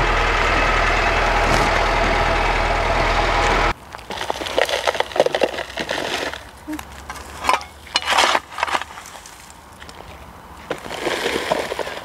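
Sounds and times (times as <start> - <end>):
car engine idling: 0.0 - 3.8
shovel scraping soil: 1.4 - 1.8, 4.1 - 9.6, 10.6 - 12.0
pebbles rattling in plastic bucket: 3.9 - 10.0, 10.6 - 12.0.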